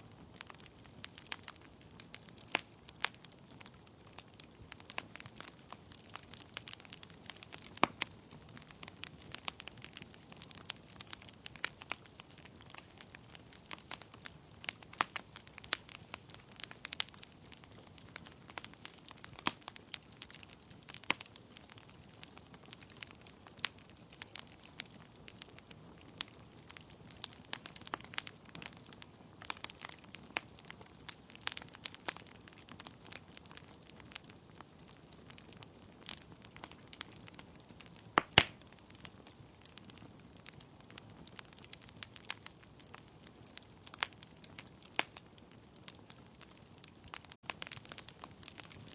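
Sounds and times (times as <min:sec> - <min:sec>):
logs crackling and popping: 0:00.0 - 0:48.9.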